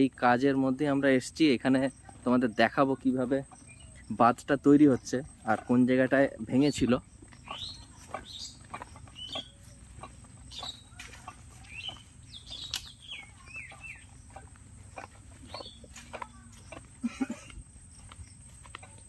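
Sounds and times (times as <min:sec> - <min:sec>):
birds chirping: 0:00.0 - 0:19.0
faint clicks: 0:12.6 - 0:12.9.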